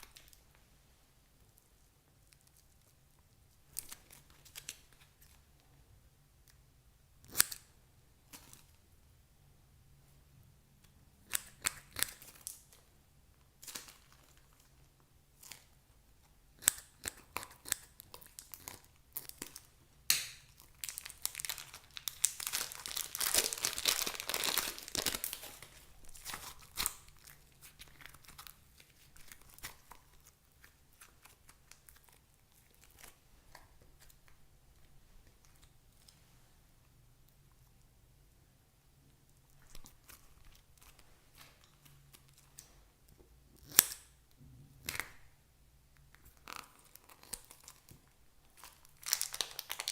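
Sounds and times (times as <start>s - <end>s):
dense crinkling and tearing: 20.5s - 36.3s, 46.1s - 49.9s.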